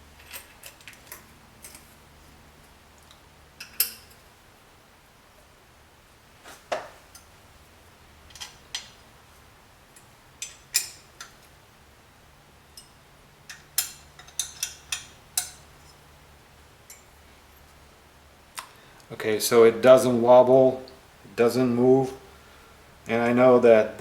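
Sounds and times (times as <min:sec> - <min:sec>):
metal tools clinking: 0:00.2 - 0:01.9, 0:12.8 - 0:16.0.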